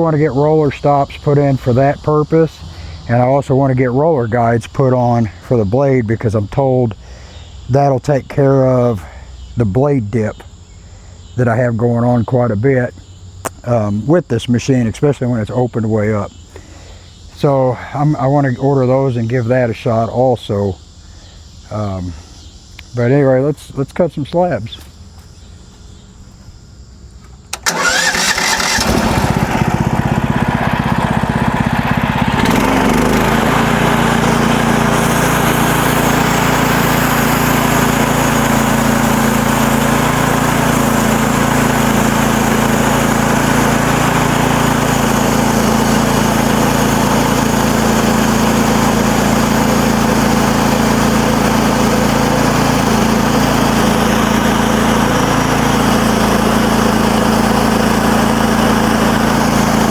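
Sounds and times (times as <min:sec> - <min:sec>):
sawmill gas engine running: 0:00.0 - 0:07.4, 0:27.5 - 0:59.9.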